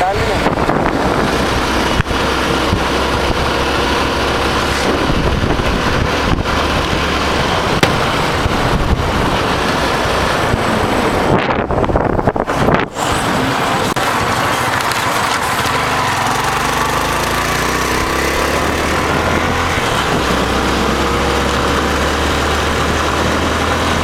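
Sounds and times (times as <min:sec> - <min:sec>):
wind buffeting microphone: 0:00.0 - 0:16.2
motorcycle running: 0:00.0 - 0:24.0.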